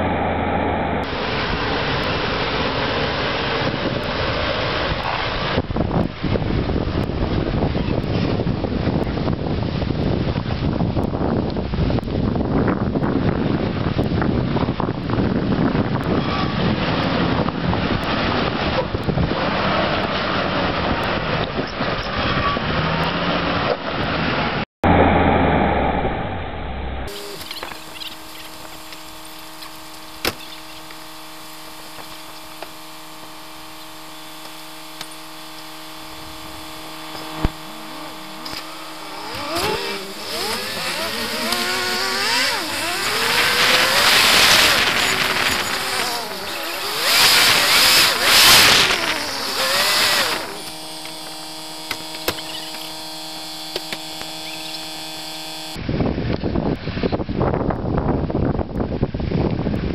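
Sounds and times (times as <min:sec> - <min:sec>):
engine whine: 0:00.0 - 0:59.9
wind noise on microphone: 0:00.0 - 0:59.9
engine running and revving: 0:13.0 - 0:55.9.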